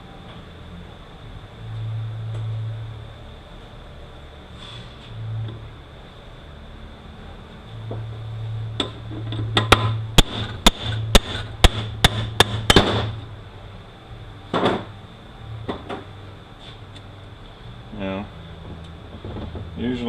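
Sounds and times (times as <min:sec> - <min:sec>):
hammer striking metal driver: 0:09.6 - 0:13.2.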